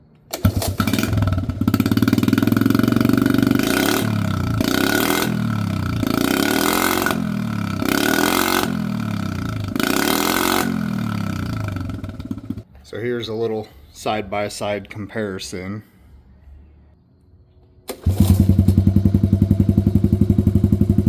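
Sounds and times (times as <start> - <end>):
small engine idling and revving: 0.3 - 12.7, 17.9 - 21.0.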